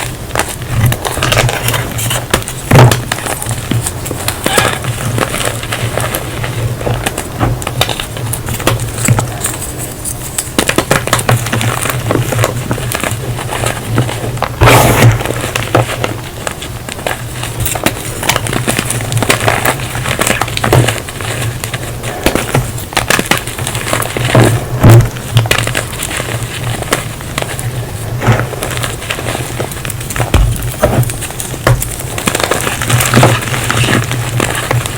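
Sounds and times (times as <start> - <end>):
low steady hum: 0.0 - 34.9
chalk squeaking and crackling: 0.6 - 6.5.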